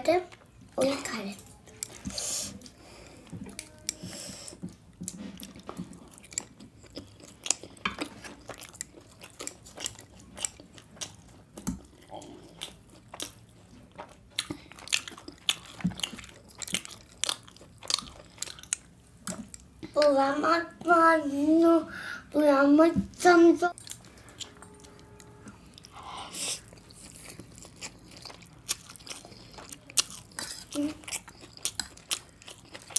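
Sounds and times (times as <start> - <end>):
person chewing crunchy food: 1.4 - 20.1, 23.7 - 32.9.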